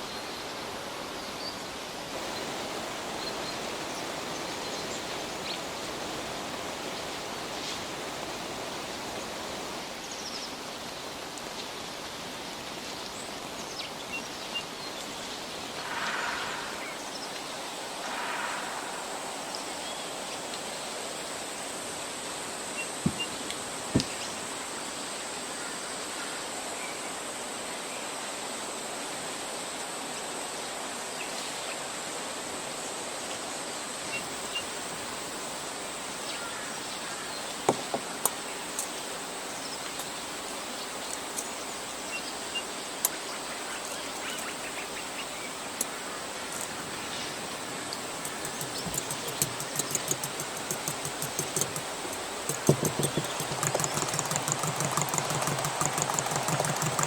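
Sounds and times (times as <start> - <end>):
outdoor ambient hiss: 0.0 - 57.0
faint ticks: 47.9 - 57.0
sharp knocks: 48.2 - 57.0.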